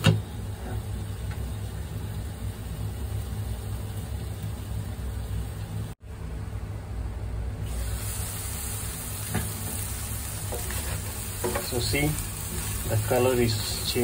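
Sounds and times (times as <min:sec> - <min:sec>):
shrimp sizzling in a pan: 0:07.7 - 0:14.0.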